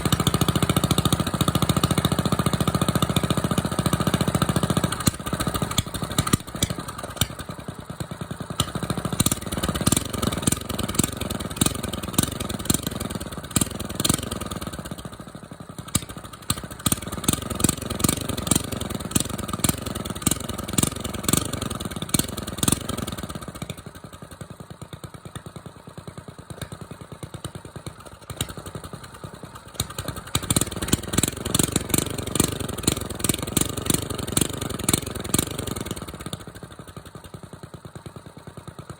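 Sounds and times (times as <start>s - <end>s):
small engine revving: 0.0s - 7.5s, 8.6s - 14.9s, 15.9s - 23.4s, 29.8s - 36.5s.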